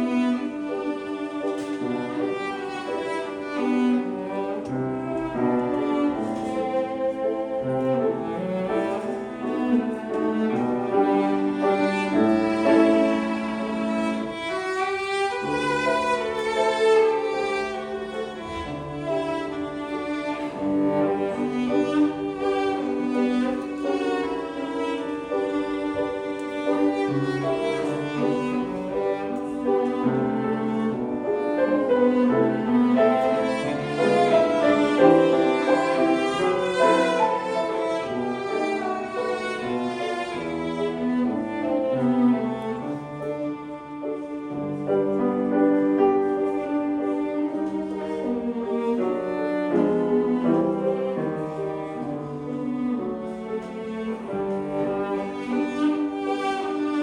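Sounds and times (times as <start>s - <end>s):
cello melody: 0.0s - 57.0s
piano accompaniment: 0.0s - 57.0s.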